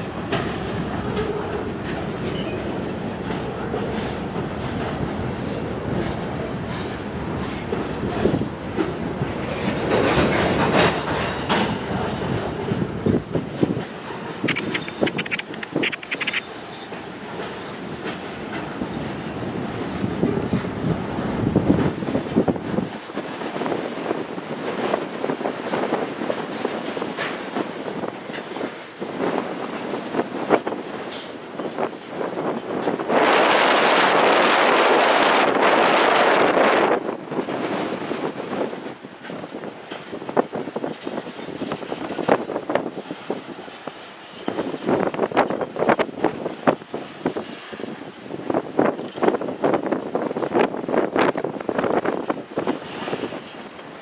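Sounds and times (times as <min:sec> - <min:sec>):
wheels clicking over rail joints: 0:00.0 - 0:33.1, 0:48.5 - 0:54.0
railroad cars rumbling past: 0:00.0 - 0:54.0.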